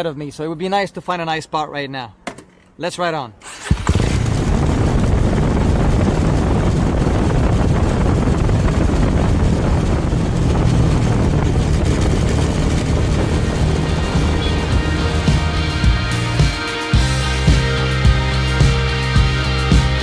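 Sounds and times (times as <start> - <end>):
wind rushing on microphone: 3.7 - 16.4
motorcycle engine running: 3.7 - 20.0.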